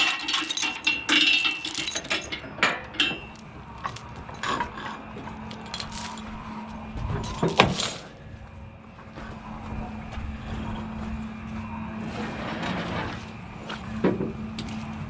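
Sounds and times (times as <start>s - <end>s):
chain links clinking: 0.0s - 4.9s, 5.5s - 6.4s, 7.2s - 8.1s
chain clank: 0.0s - 6.4s, 7.2s - 8.2s.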